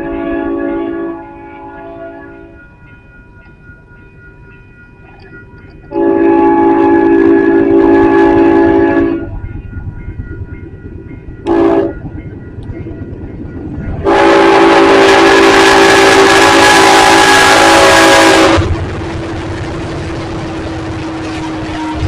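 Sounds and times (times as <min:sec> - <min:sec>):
locomotive air horn blasts: 0:00.0 - 0:02.5, 0:05.9 - 0:09.3, 0:11.4 - 0:12.0, 0:14.0 - 0:18.8, 0:20.9 - 0:22.0
train rumbling: 0:00.0 - 0:22.0.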